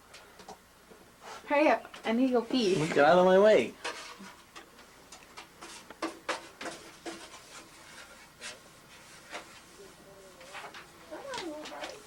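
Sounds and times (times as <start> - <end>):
scraping and tapping on a pipe: 3.8 - 9.6.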